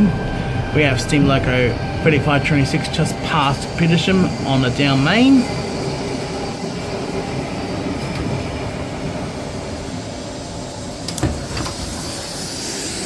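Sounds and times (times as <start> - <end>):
electric train rumble: 0.0 - 13.0.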